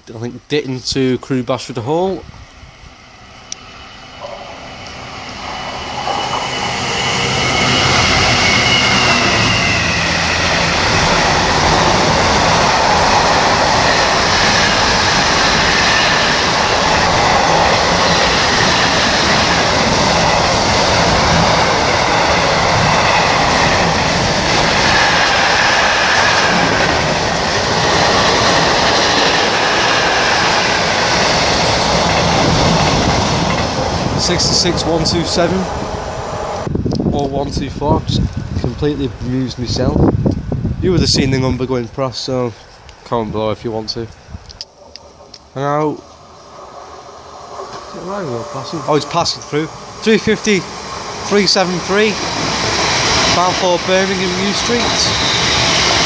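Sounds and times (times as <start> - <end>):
diesel locomotive engine: 0.0 - 56.0.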